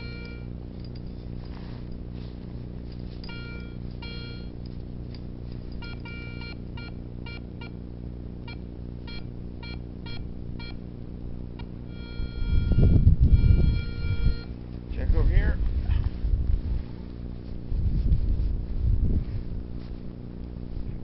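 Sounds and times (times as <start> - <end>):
metal detector beeps: 0.0 - 0.6, 3.2 - 4.6, 5.7 - 7.8, 8.5 - 10.8, 11.9 - 14.6
steady low hum: 0.0 - 21.0.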